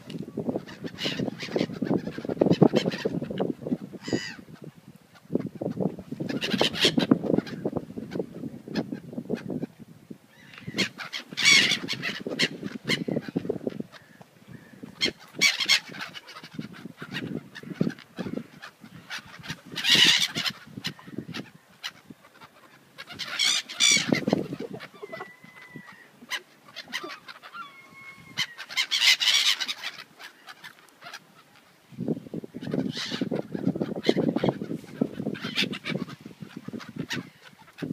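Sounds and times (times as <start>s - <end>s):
gulls squawking: 0.6s - 3.4s, 10.4s - 31.8s, 32.5s - 37.9s.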